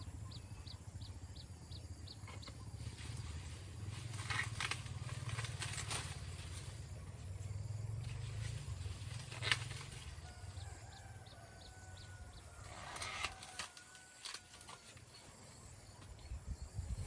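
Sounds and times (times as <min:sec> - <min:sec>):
low steady rumble: 0:00.0 - 0:13.1
rooster crowing: 0:10.2 - 0:14.9.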